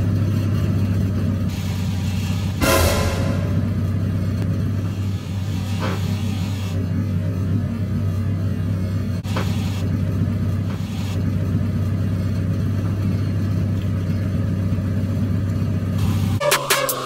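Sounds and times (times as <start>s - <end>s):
steady low rumble: 2.6s - 4.7s.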